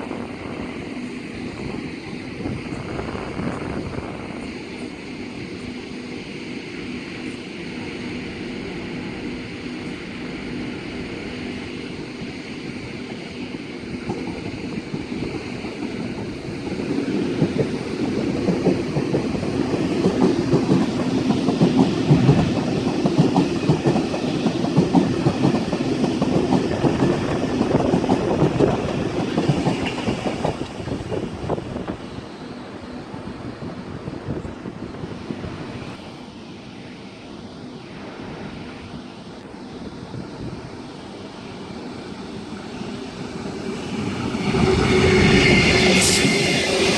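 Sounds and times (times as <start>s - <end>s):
train wheels clattering over rails: 7.2s - 32.2s, 41.2s - 46.9s.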